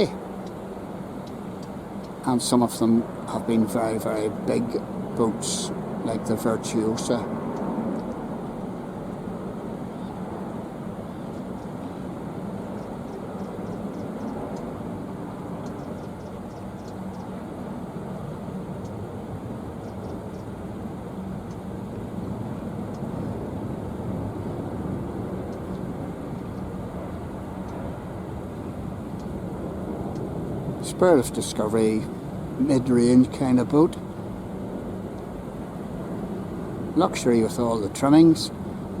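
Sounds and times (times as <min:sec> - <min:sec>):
faint ticks: 0:01.2 - 0:02.2, 0:07.5 - 0:08.3, 0:12.7 - 0:14.7, 0:15.6 - 0:17.3, 0:18.8 - 0:19.0, 0:19.8 - 0:20.5, 0:21.4 - 0:21.6, 0:22.9 - 0:23.1, 0:25.5 - 0:26.7, 0:27.6 - 0:27.8, 0:29.1 - 0:29.4, 0:30.0 - 0:30.3.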